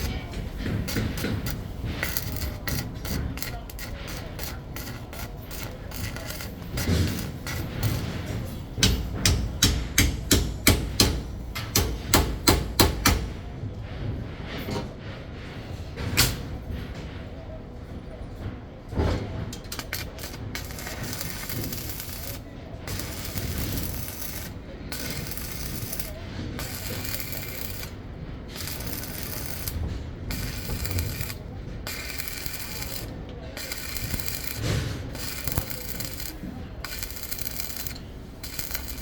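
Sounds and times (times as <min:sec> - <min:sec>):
scraping on hard surface: 0:00.0 - 0:09.2, 0:19.0 - 0:39.0.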